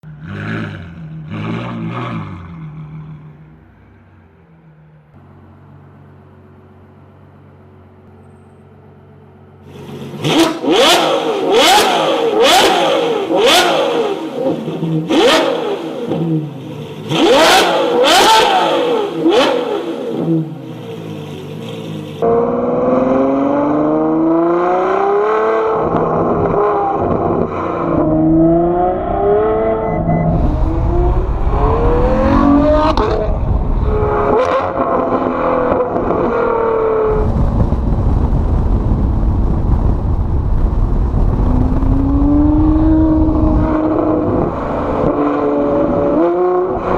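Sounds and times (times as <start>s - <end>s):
sports car engine revving: 0.1s - 3.8s, 9.7s - 40.0s, 41.0s - 46.9s
car accelerating through gears: 22.2s - 37.3s.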